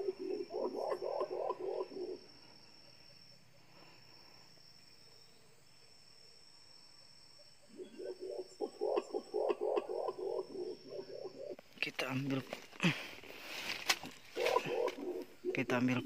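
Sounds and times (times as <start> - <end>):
high-pitched insect drone: 0.0 - 11.7.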